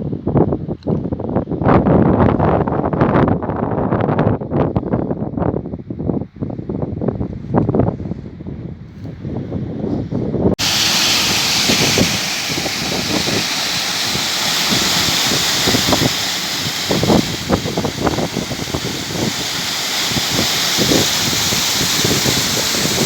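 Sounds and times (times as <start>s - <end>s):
wind buffeting microphone: 0.0s - 23.0s
waterfall rushing: 10.6s - 23.0s.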